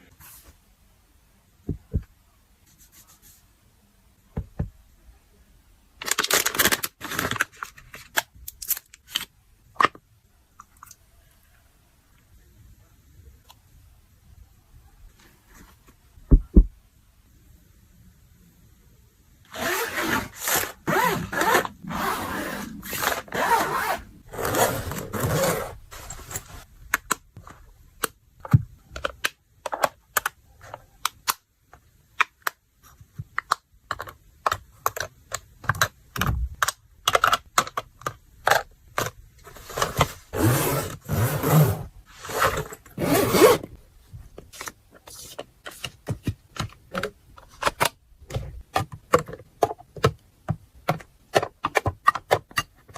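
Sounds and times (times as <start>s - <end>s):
objects scraping and rubbing: 19.6s - 26.7s.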